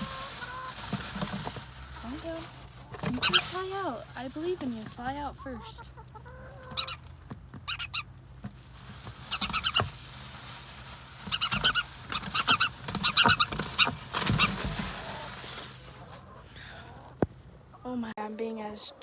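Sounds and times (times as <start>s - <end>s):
handling rustle: 0.0s - 5.6s, 6.6s - 16.3s
sparrow distress chirps: 3.1s - 4.2s, 6.6s - 7.0s, 7.7s - 8.1s, 9.3s - 9.9s, 11.2s - 14.6s.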